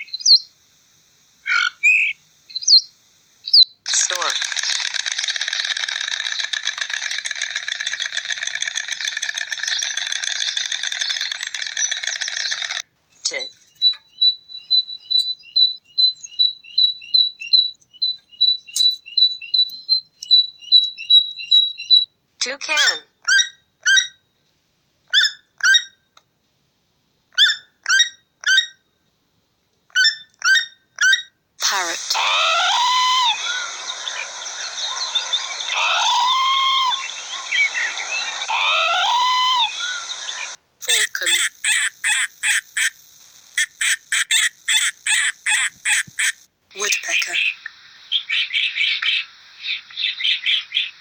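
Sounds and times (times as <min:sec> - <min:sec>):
toucan calling: 0:01.5 - 0:02.9, 0:03.5 - 0:22.1, 0:30.0 - 0:51.0
stork clattering its bill: 0:04.2 - 0:12.8.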